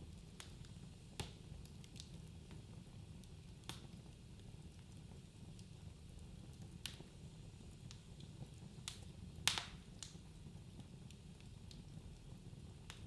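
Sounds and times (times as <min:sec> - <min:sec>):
wood fire crackling: 0:00.0 - 0:13.0
loud fire pops: 0:08.8 - 0:10.2.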